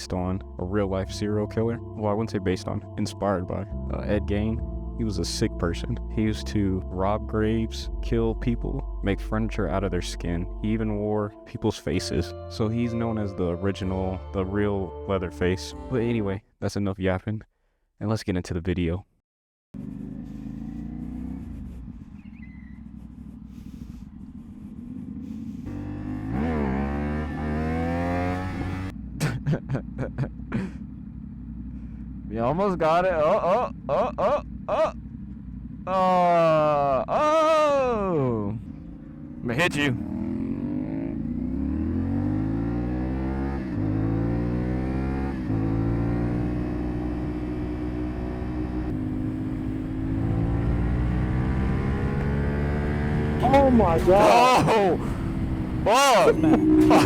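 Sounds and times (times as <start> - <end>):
motorcycle engine revving: 19.8 - 36.8, 37.8 - 57.0.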